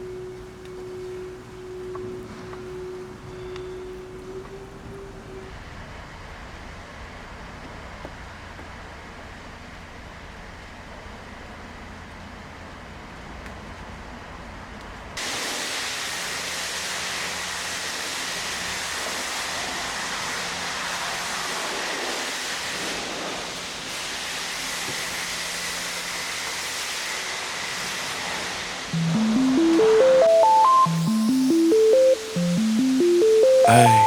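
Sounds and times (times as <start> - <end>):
faint constant whine: 0.0 - 6.0, 28.9 - 34.0.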